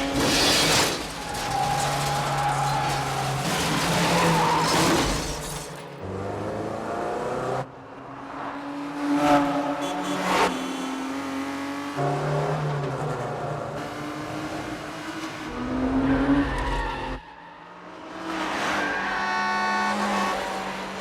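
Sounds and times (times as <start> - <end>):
car engines revving hard: 0.0 - 21.0
cars passing by loudly: 5.8 - 21.0.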